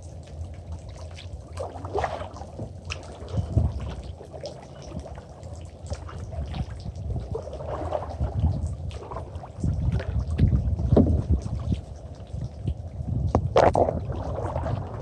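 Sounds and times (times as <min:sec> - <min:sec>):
paddle strokes splashing in water: 0:00.0 - 0:12.4, 0:13.4 - 0:15.0
low microphone rumble: 0:02.4 - 0:04.2, 0:05.9 - 0:15.0.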